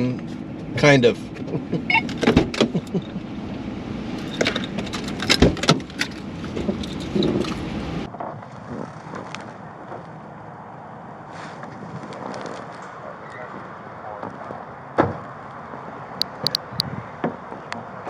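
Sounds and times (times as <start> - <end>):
steady low rumble: 0.0 - 8.1
clicks and knocks of handling: 4.2 - 7.7.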